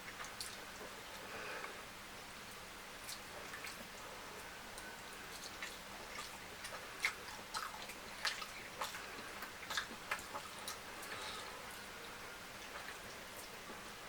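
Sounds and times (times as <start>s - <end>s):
wet chewing and mouth smacks: 3.0s - 4.0s, 4.7s - 13.8s.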